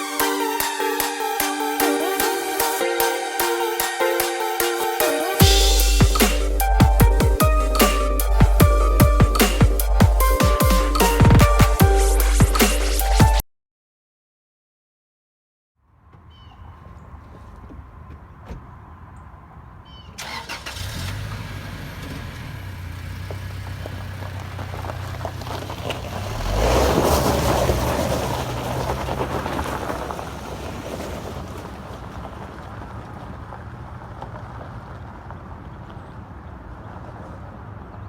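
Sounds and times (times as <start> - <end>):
engine starting and humming: 20.2 - 31.8.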